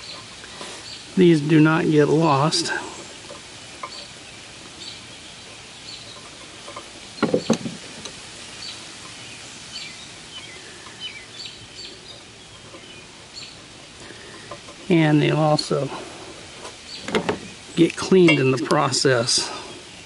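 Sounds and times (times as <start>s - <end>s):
birds chirping: 0.0s - 20.0s
faint background hiss: 0.0s - 20.0s
metal clattering: 18.2s - 19.0s.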